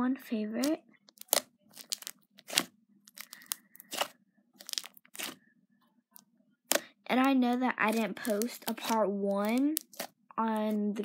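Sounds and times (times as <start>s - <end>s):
slime crackling and popping: 0.6s - 5.4s, 6.7s - 10.8s.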